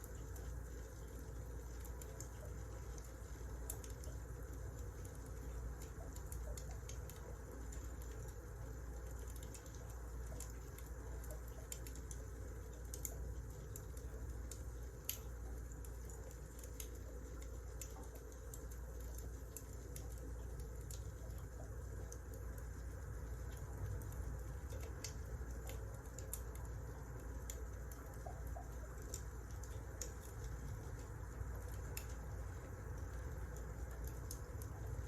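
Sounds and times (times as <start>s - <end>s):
fire crackles and pops: 0.0s - 35.0s
firewood burning: 9.0s - 35.0s.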